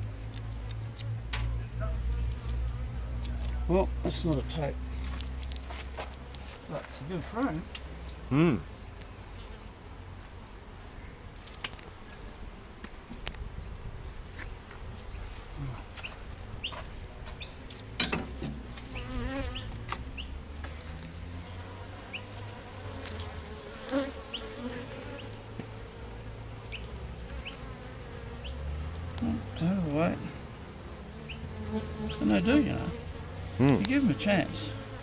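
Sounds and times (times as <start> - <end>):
bees buzzing: 15.0 - 35.0.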